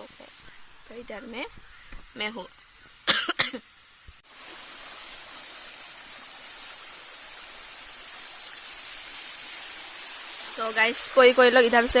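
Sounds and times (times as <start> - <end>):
small waterfall splashing: 4.1 - 12.0.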